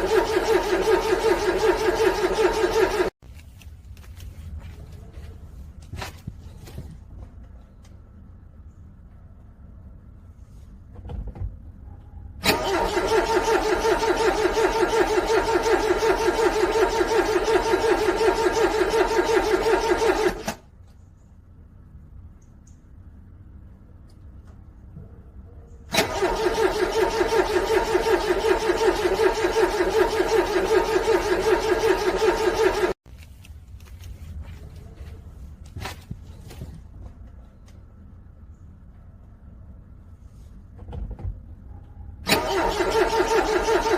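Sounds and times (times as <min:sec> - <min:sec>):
starter motor cranking engine: 0:00.0 - 0:03.2, 0:12.4 - 0:20.7, 0:25.9 - 0:33.0, 0:42.2 - 0:43.9.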